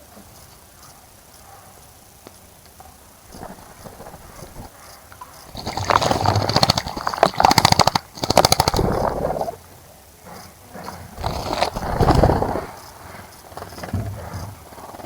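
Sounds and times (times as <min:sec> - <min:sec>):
bird splashing in water: 0:03.3 - 0:04.7, 0:05.5 - 0:09.6, 0:11.2 - 0:12.8.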